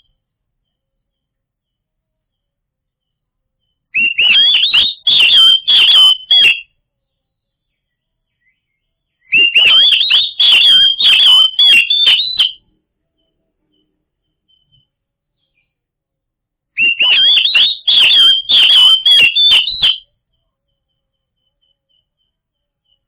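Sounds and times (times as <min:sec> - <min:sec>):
bird singing whistled phrases: 0:04.0 - 0:06.7, 0:08.3 - 0:12.7, 0:16.8 - 0:20.1.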